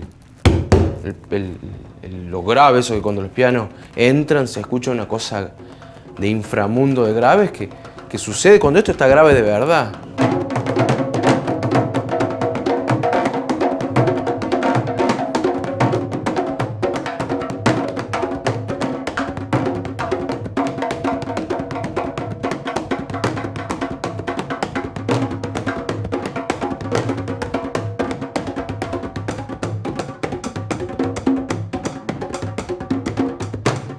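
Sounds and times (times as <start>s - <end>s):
drum ensemble playing: 0.0s - 33.9s
deep bass drum: 0.4s - 2.0s.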